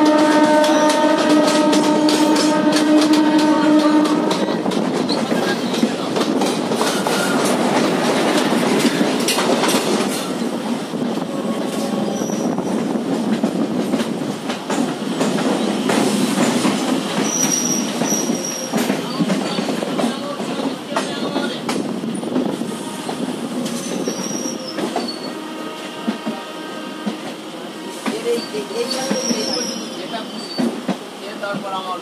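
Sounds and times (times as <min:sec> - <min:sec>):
clatters over rail joints: 0:00.0 - 0:10.6
train wheels rumbling on rail: 0:00.0 - 0:32.0
high wheel squeals: 0:17.2 - 0:19.2, 0:23.8 - 0:25.4, 0:28.2 - 0:30.8.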